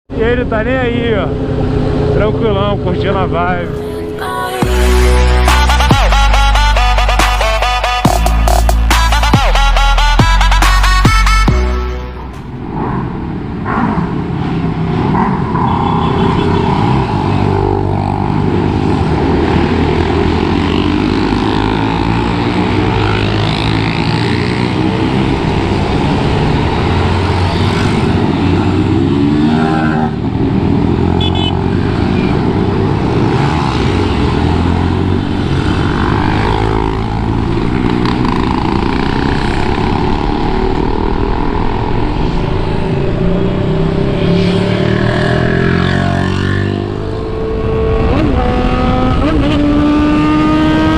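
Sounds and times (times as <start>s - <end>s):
wind and road noise: 0.1s - 50.9s
motorcycle engine revving: 12.9s - 50.9s.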